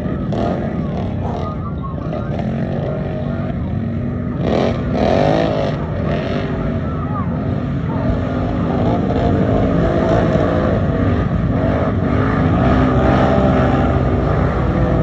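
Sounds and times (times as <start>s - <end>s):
race engines revving: 0.0s - 15.0s.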